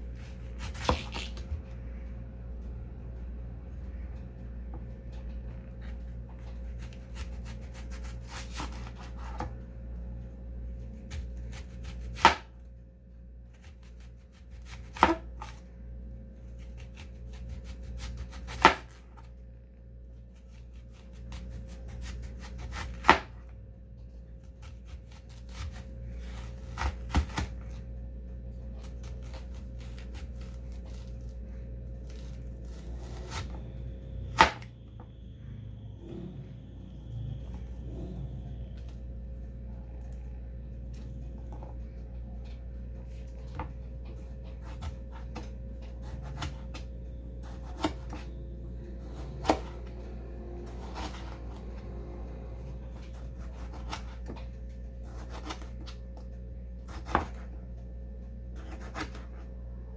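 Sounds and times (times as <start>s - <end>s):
steady low hum: 0.0s - 59.9s
knife chopping on cutting board: 0.6s - 1.4s, 14.6s - 15.5s, 47.4s - 48.2s, 56.9s - 57.4s.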